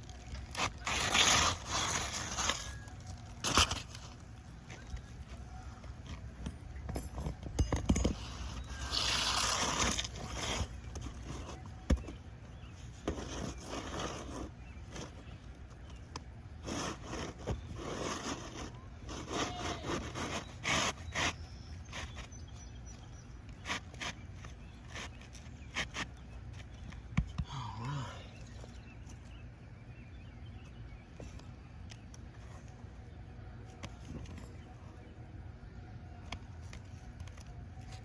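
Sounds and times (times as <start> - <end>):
shingles scraping and rustling: 0.0 - 16.0, 16.6 - 26.8.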